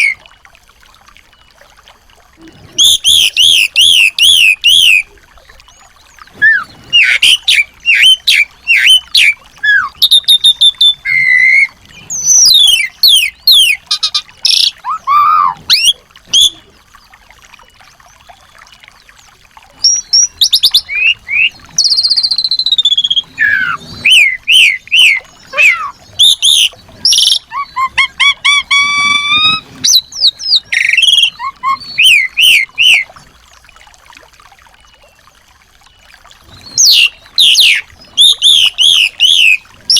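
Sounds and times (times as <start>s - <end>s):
songbirds chirping and whistling: 2.8s - 16.7s, 19.8s - 33.1s, 36.5s - 39.7s.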